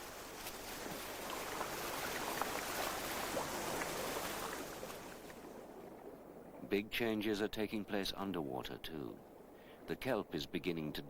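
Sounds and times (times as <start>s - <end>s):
sea water washing over rocks: 0.0s - 5.9s.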